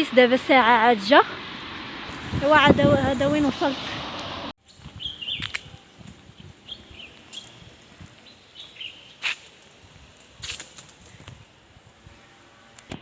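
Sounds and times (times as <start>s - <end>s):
small birds chirping: 4.6s - 11.6s
rustling: 4.7s - 11.5s.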